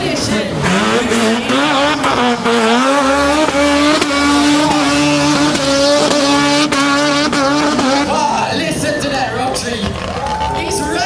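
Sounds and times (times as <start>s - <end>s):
car engine at high revs: 0.0s - 11.0s.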